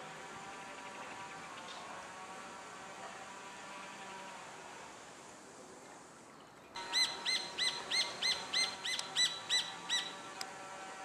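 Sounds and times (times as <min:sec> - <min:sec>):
bird calling clear notes: 0:06.8 - 0:10.4.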